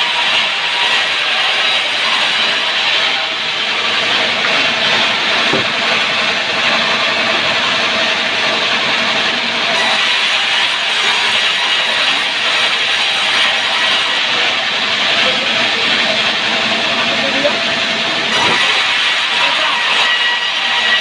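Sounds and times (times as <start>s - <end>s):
saw blade grinding through wood: 0.0s - 21.0s.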